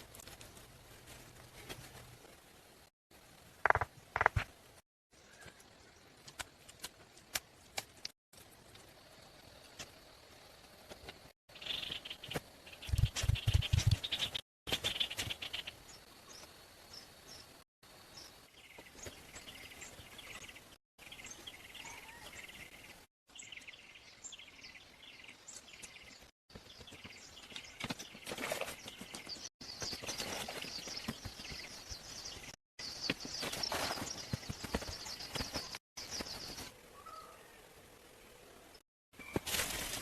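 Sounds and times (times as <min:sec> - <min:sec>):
outdoor ambience: 0:00.0 - 0:40.0
birds chirping: 0:11.5 - 0:39.4.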